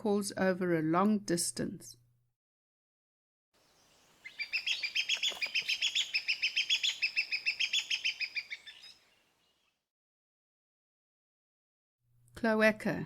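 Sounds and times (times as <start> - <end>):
hornbill calling: 3.6 - 9.6.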